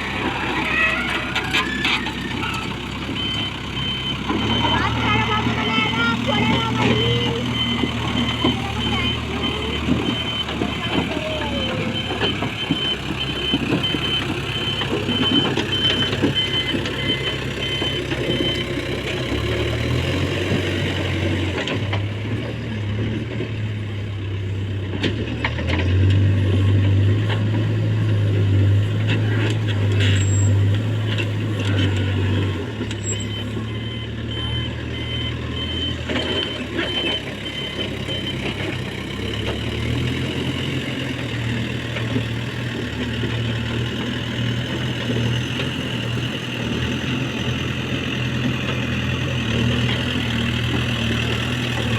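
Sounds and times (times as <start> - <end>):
backhoe diesel engine digging: 0.0 - 51.9
high-pitched beeping alarm: 2.5 - 18.7, 31.6 - 38.6.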